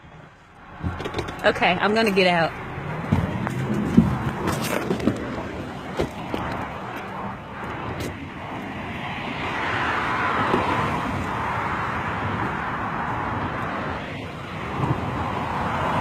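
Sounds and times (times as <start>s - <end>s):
outdoor traffic noise: 0.0s - 16.0s
vehicle passing: 0.0s - 16.0s
car door clicks and knocks: 0.8s - 1.4s.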